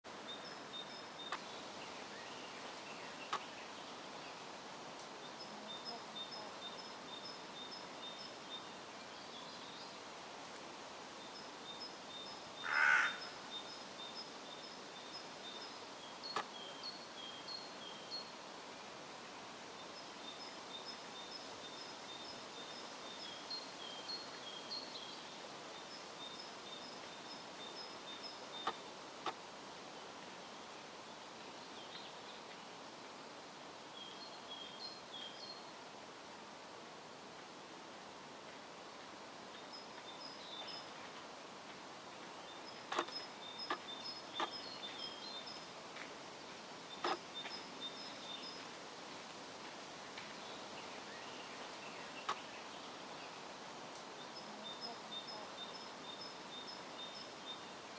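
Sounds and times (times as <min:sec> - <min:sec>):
crow cawing: 0:12.6 - 0:13.4.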